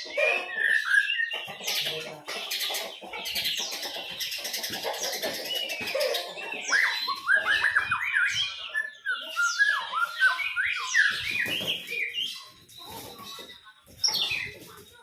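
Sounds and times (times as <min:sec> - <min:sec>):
bird singing whistled notes: 0:06.6 - 0:12.5.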